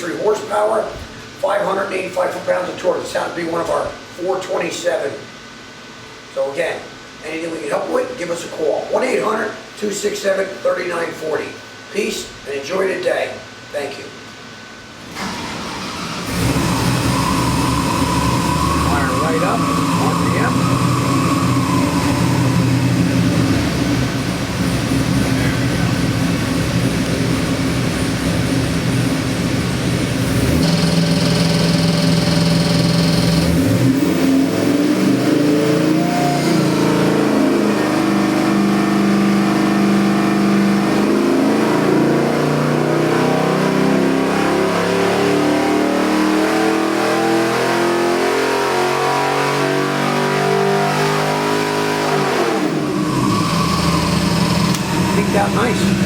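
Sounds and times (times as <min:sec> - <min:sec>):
car engine idling and revving: 0:15.2 - 0:56.0.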